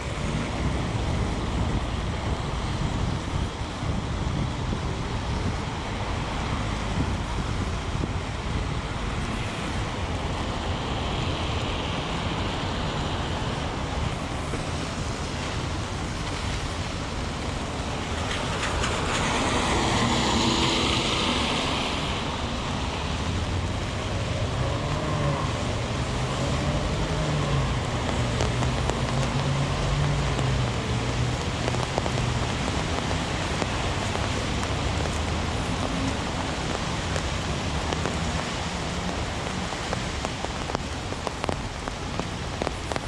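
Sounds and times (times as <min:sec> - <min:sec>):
heavy rain: 0:00.0 - 0:43.0
traffic on wet streets: 0:00.0 - 0:43.0
tyre hiss on wet road: 0:08.6 - 0:43.0.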